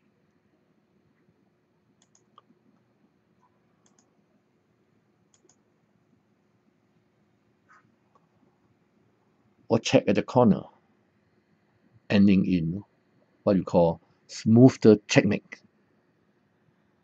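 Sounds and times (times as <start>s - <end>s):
faint sharp clicks: 2.0s - 2.9s, 3.8s - 4.1s, 5.3s - 5.6s.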